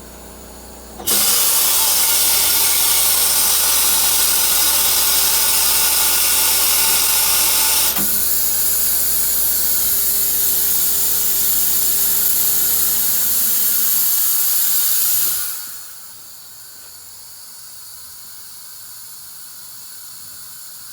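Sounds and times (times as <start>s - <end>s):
low machine hum: 0.0s - 14.8s
loud steady hiss: 0.0s - 20.9s.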